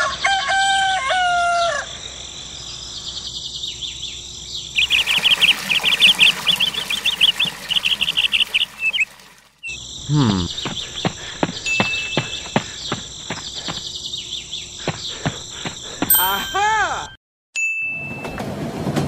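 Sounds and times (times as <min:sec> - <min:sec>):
rooster crowing: 0:00.0 - 0:02.0
high bird chirps: 0:04.7 - 0:16.9.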